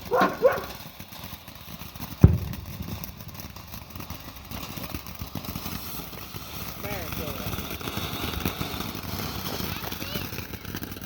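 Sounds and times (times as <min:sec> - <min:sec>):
sharp firework bang: 0:02.2 - 0:10.0.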